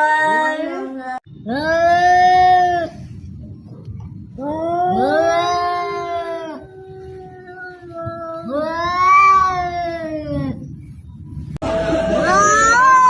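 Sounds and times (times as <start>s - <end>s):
cats yowling: 0.0s - 3.0s, 4.4s - 10.6s, 12.2s - 13.0s.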